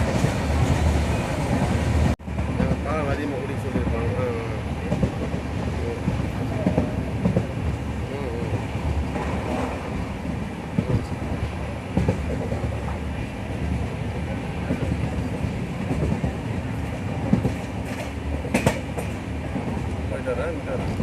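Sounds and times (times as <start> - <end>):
train rumble on rails: 0.0 - 21.0
wheels clacking and knocking: 14.7 - 20.0.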